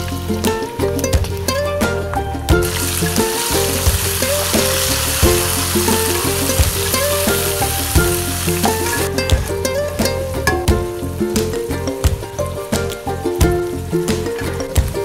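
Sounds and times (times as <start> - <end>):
tomatoes sizzling in hot oil: 2.5 - 10.0.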